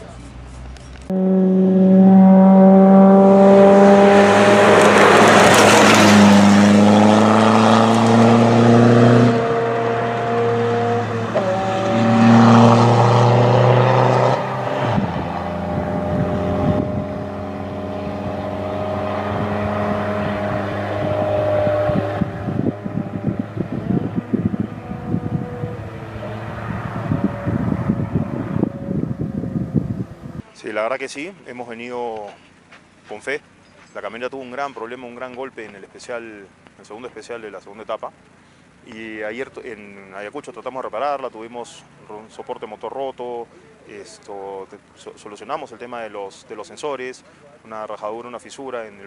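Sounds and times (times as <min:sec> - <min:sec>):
truck engine revving: 0:01.1 - 0:30.4.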